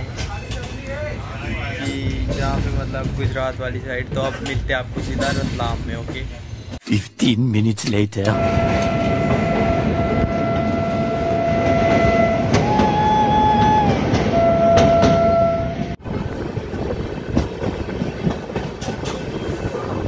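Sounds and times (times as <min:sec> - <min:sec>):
wheels clicking over rail joints: 0:00.0 - 0:06.4, 0:17.2 - 0:20.0
train rumbling: 0:00.0 - 0:07.1, 0:08.2 - 0:20.0
locomotive horn: 0:08.3 - 0:16.0.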